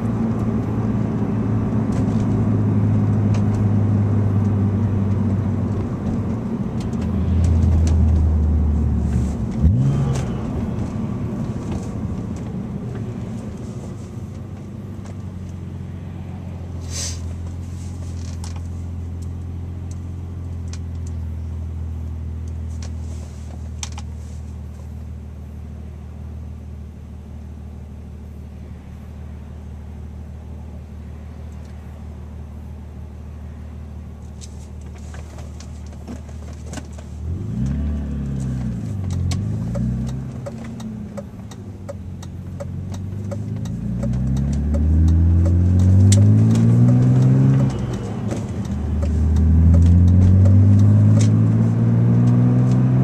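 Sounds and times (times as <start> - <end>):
car accelerating away: 0.0 - 13.2, 37.2 - 41.6, 42.2 - 53.0
car engine idling and revving: 0.0 - 53.0.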